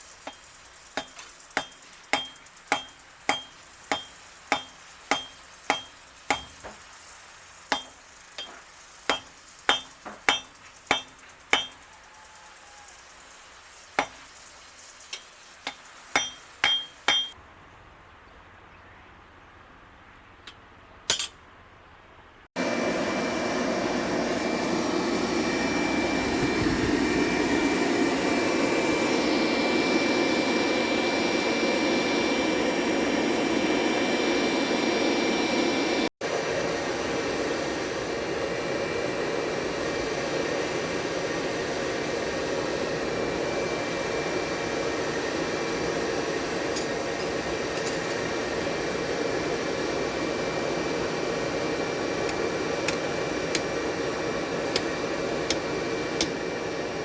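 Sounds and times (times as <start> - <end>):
electric grinder whining on steel: 22.6 - 36.0.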